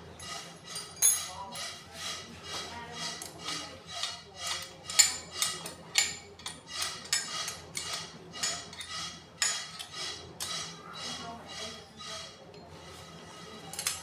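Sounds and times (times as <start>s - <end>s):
metal tools clinking: 0.8s - 1.5s.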